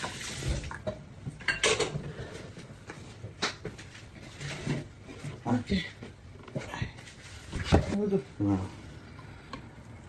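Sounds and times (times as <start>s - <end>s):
dishes and cutlery clinking: 0.8s - 2.2s.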